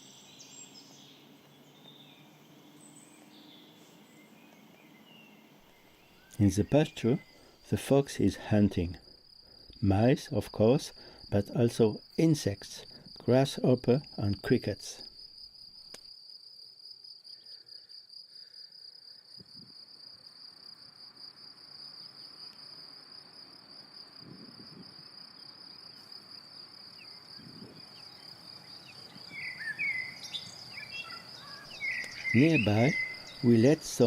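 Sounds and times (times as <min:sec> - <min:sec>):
crickets trilling: 0:00.0 - 0:34.0
bird chirps: 0:27.0 - 0:34.0.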